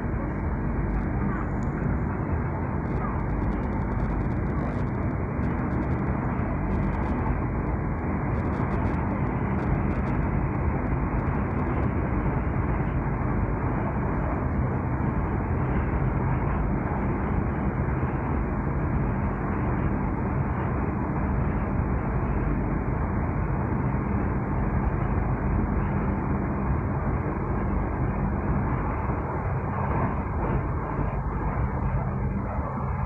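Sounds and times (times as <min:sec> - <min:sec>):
train wheels rumbling on track: 0:26.9 - 0:33.0.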